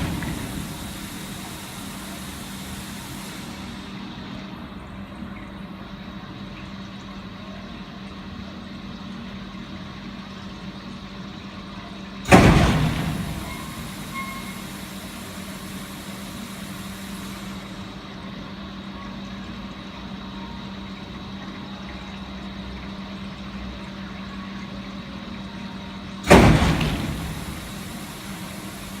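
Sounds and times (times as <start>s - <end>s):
loud sudden burst: 0.0s - 3.9s, 12.3s - 17.7s, 26.3s - 29.0s
cleaning machine humming: 0.0s - 4.9s, 12.3s - 18.3s, 26.2s - 29.0s.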